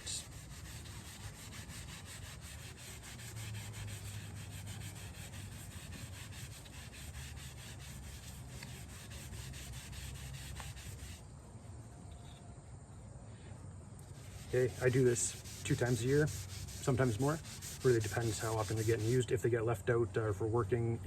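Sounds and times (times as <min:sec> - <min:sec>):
cloth rubbing on wooden handle: 0:00.0 - 0:11.2, 0:14.0 - 0:19.4.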